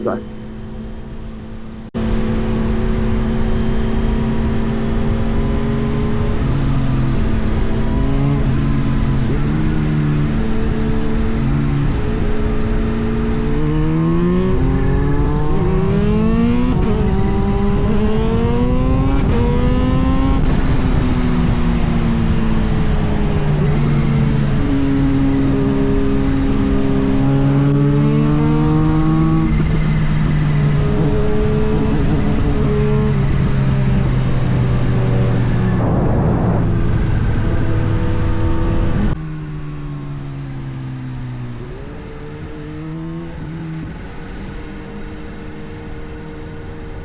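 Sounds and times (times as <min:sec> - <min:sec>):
wind noise: 0:14.4 - 0:39.2
motorcycle engine running: 0:14.6 - 0:47.0.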